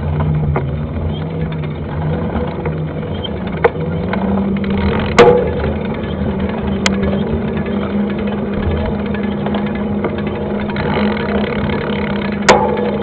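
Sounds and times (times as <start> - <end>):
bike knocks and rattles: 0.0 - 13.0
bike rumbling over dirt trail: 0.0 - 13.0.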